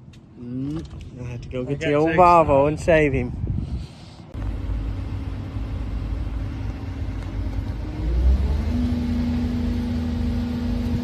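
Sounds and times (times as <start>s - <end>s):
excavator diesel engine rumbling: 4.2s - 11.0s.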